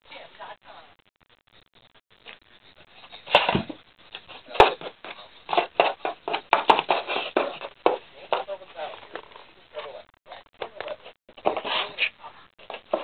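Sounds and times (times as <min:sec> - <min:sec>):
cats scratching cardboard: 0:03.0 - 0:09.4, 0:11.3 - 0:13.0.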